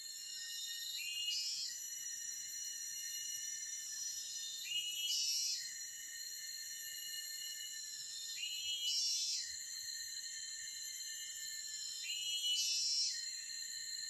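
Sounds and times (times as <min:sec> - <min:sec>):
insects trilling: 0:00.0 - 0:14.0
louder insect call: 0:00.0 - 0:14.0.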